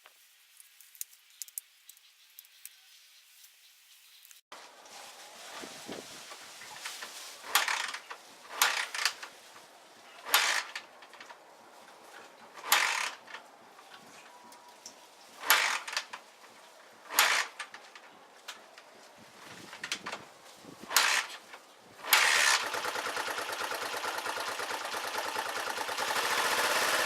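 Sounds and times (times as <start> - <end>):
motorcycle being kick-started: 7.4 - 9.3, 10.2 - 11.4, 12.5 - 13.4, 15.4 - 16.2, 17.1 - 18.0, 20.9 - 27.0.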